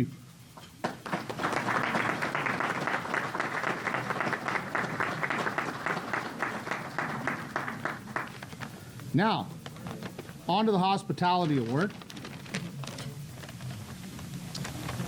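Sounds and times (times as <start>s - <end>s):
audience applauding: 0.8s - 8.9s.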